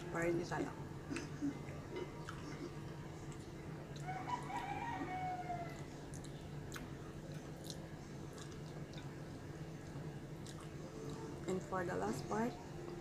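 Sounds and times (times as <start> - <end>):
steady low hum: 0.0 - 13.0
chewing with mouth clicks: 1.1 - 4.1, 5.7 - 9.2, 9.8 - 11.3
rooster crowing: 4.0 - 6.0.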